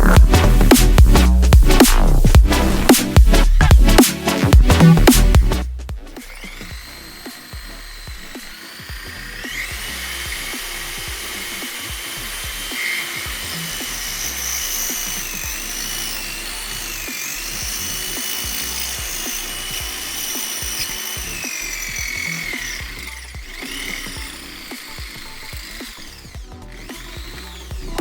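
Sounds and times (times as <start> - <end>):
background music: 0.0 - 28.0
electric drill motor whine: 6.0 - 28.0.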